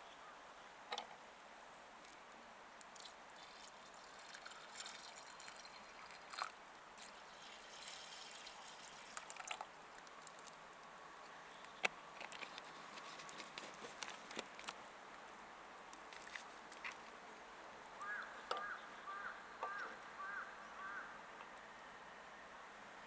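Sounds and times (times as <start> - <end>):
liquid trickling: 2.9 - 10.6.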